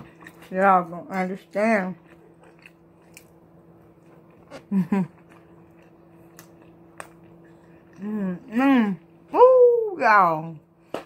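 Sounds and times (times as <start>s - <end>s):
close-up chewing: 0.0s - 0.6s, 1.2s - 8.1s
faint steady hum: 0.0s - 11.0s
short hummed vocal sounds: 4.4s - 6.6s, 7.3s - 10.6s.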